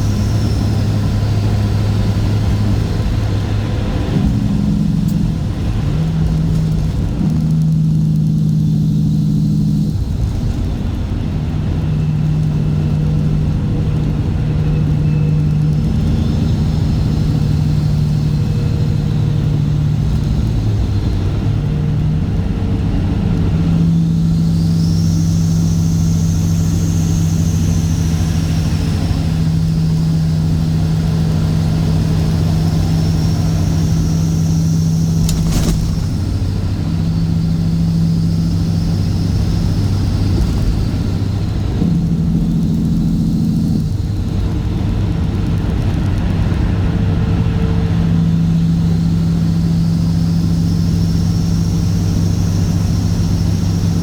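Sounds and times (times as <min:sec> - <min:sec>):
diesel truck engine droning: 0:00.0 - 0:54.0
faint high whistle: 0:14.5 - 0:19.2, 0:23.8 - 0:29.8
sharp click: 0:35.2 - 0:36.1.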